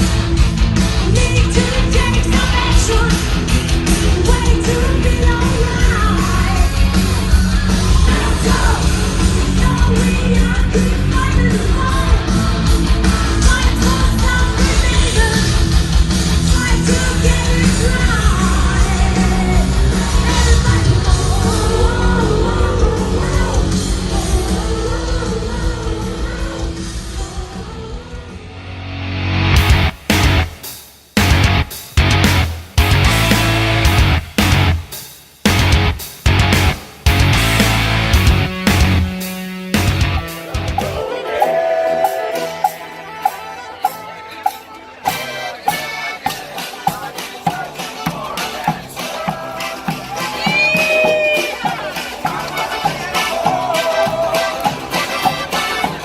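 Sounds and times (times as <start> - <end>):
fast drums: 0.0 - 28.2, 29.5 - 56.0
singing and yelled vocals: 0.0 - 28.6, 39.8 - 56.0
bass guitar: 0.0 - 30.6, 31.2 - 41.1
distorted guitars: 0.0 - 56.0.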